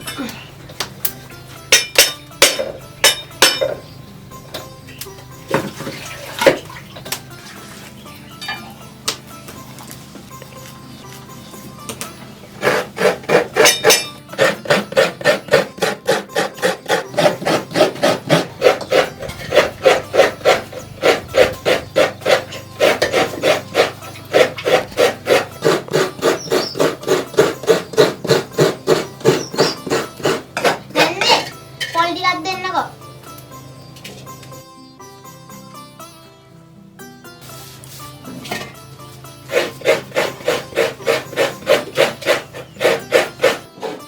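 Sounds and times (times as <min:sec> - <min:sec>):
coconut grating rasping strokes: 0:12.5 - 0:31.5, 0:39.4 - 0:44.0.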